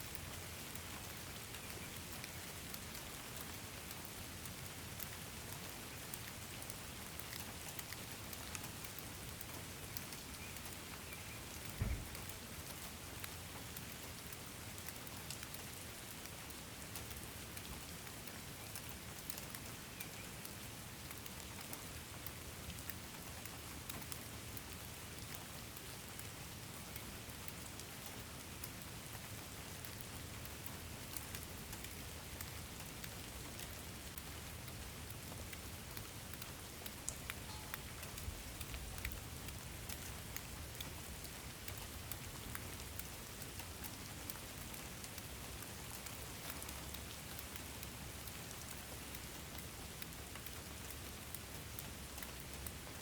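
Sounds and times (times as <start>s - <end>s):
rain ticking on a surface: 0.0s - 53.0s.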